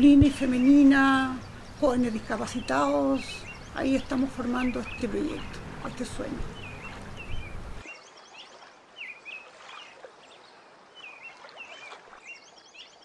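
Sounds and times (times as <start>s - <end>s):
light background hiss: 0.0s - 7.8s
small birds chirping: 0.0s - 13.0s.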